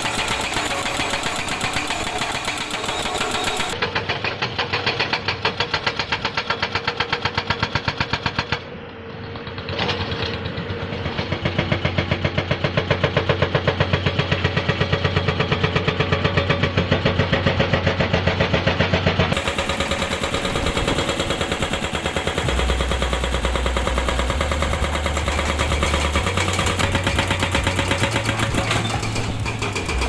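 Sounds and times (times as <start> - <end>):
hydraulic rock breaker hammering rock: 0.0 - 8.7, 19.3 - 30.0.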